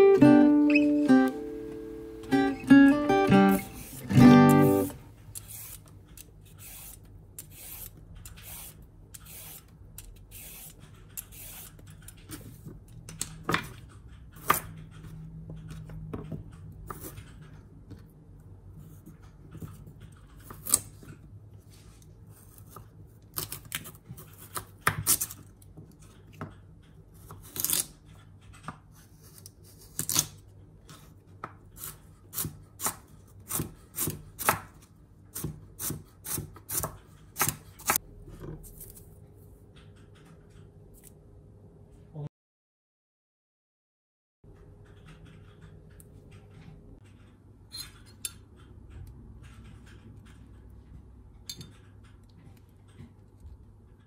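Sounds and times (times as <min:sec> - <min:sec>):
peeler scraping carrot: 0:03.4 - 0:12.1
knife chopping on wooden board: 0:31.4 - 0:38.0.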